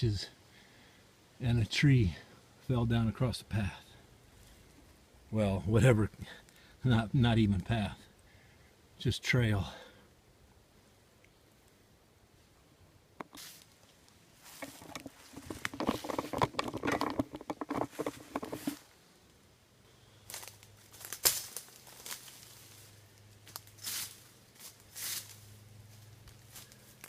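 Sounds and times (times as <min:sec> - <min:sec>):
twigs and leaves crackling: 0:13.2 - 0:19.4, 0:20.2 - 0:27.0.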